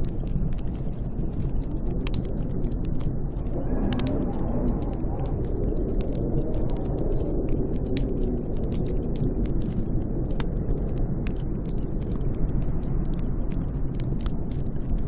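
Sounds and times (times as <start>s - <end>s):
snowstorm wind howling: 0.0s - 15.0s.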